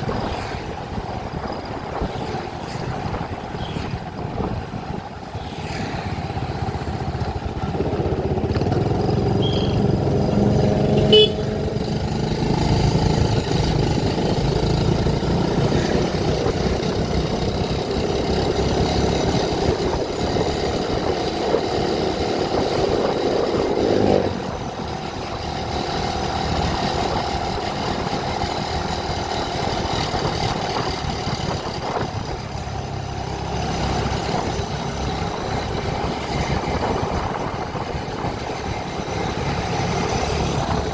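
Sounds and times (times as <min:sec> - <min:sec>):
vehicle engine and road noise: 0:00.0 - 0:40.9
car horn toot: 0:09.4 - 0:09.9, 0:10.9 - 0:11.6.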